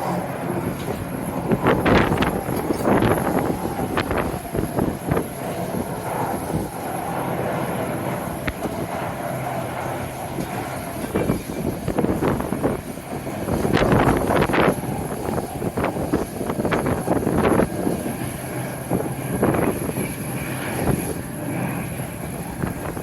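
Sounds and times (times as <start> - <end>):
jet engines rumbling: 0.0 - 23.0
wind buffeting microphone: 0.0 - 23.0.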